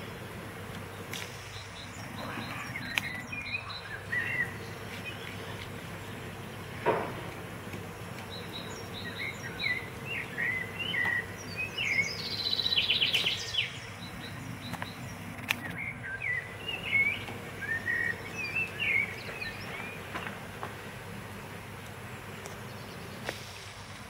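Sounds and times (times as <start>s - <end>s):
birds chirping and singing: 0.0s - 23.4s
sharp clicks: 2.8s - 3.2s, 14.7s - 15.8s
bird trill: 8.2s - 20.2s.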